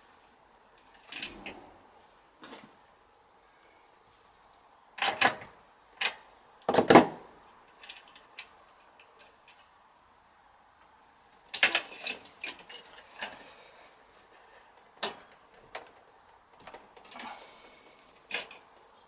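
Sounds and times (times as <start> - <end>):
hand tools clicking and knocking: 11.5 - 13.4.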